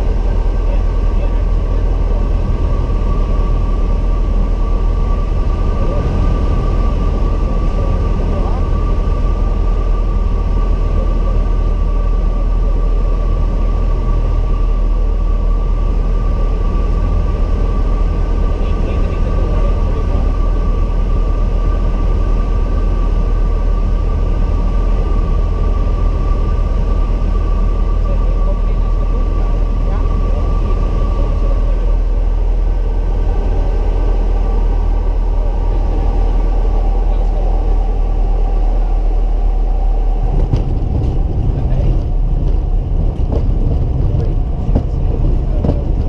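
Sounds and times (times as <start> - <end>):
aircraft engine and propeller drone: 0.0 - 46.0
steady high hum: 0.0 - 46.0.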